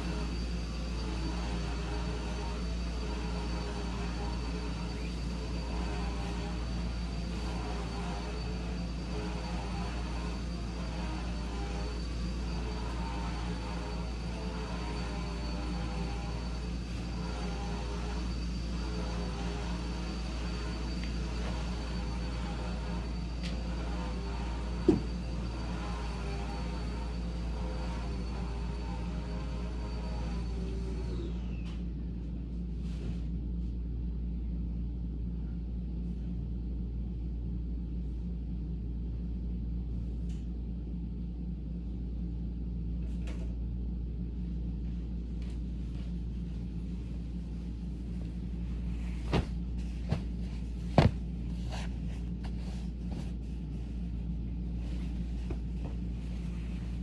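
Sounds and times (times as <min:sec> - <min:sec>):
vacuum cleaner running: 0:00.0 - 0:31.9, 0:44.8 - 0:57.0.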